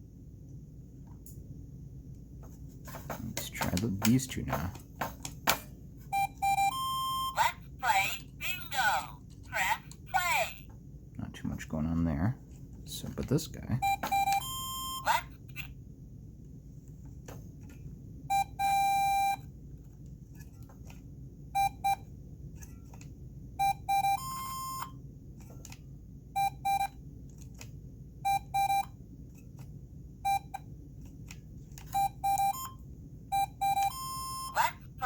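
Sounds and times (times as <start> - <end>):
steady low hum: 0.0 - 35.0
toy electronic beeps: 6.1 - 8.1, 13.8 - 15.7, 18.3 - 19.5, 23.6 - 24.9, 28.3 - 28.9, 31.9 - 35.0.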